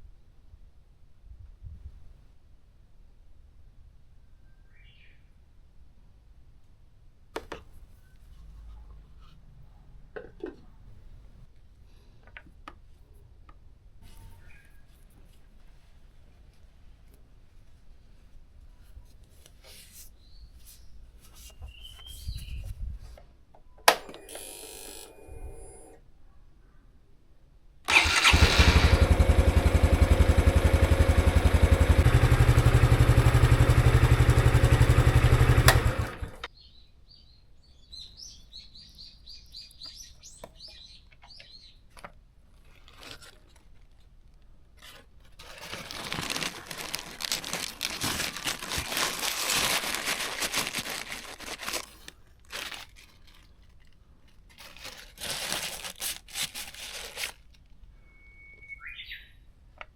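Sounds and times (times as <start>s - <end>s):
motorcycle engine starting and running: 24.0s - 26.0s, 27.9s - 36.5s.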